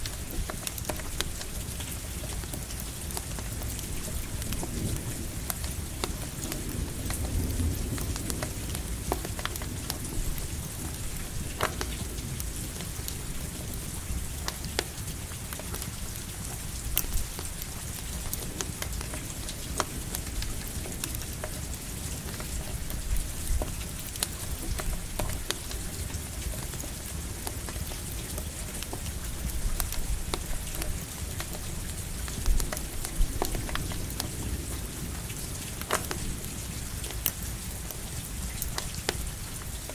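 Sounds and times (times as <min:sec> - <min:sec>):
campfire crackling: 0:00.0 - 0:39.9
steady rain falling: 0:00.0 - 0:39.9.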